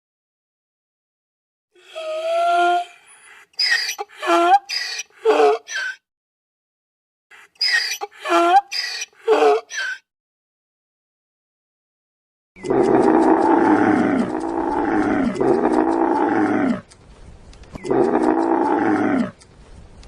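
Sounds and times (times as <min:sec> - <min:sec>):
big cat roaring: 0:12.6 - 0:16.9, 0:17.8 - 0:19.4.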